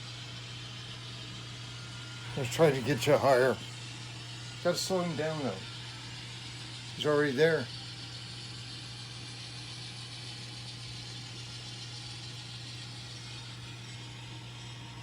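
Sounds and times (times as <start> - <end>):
diesel engine sound from speaker: 2.2 - 3.8, 4.6 - 5.7.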